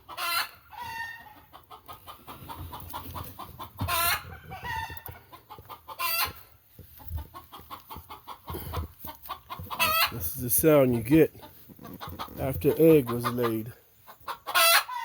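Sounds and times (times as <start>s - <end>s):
hen clucking: 0.0s - 15.0s.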